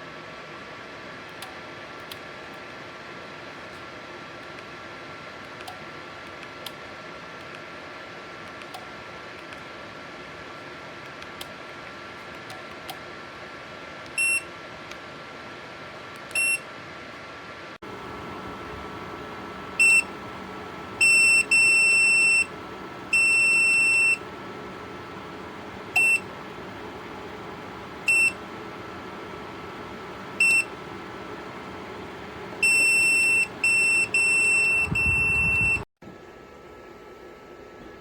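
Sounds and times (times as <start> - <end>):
high-pitched heater beeps: 14.2 - 14.5, 16.4 - 16.6, 17.9 - 35.9
steady hum: 17.8 - 38.0.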